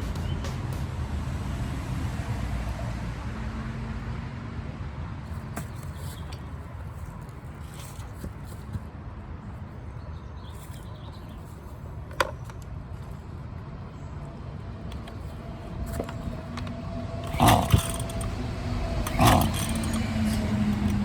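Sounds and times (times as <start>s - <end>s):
recoil starter cord pulled: 14.9s - 21.0s
engine turning over briefly: 17.2s - 21.0s.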